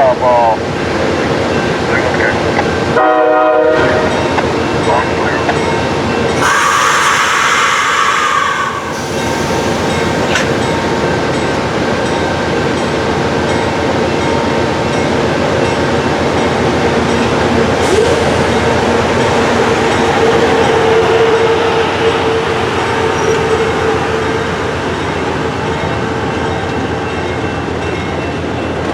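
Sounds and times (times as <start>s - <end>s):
train wheel and rail noise: 0.0s - 28.9s
train horn blast: 3.0s - 4.3s, 6.4s - 10.7s, 17.8s - 26.5s.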